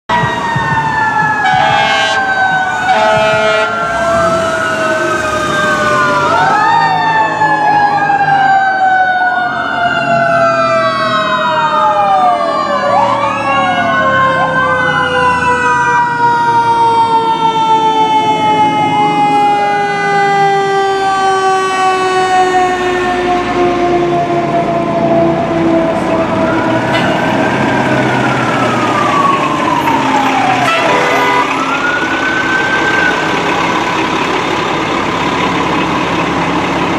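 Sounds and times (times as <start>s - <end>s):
siren tone winding down: 0.1s - 36.1s
truck engines rumbling: 0.1s - 36.9s
wailing sirens: 0.1s - 36.9s.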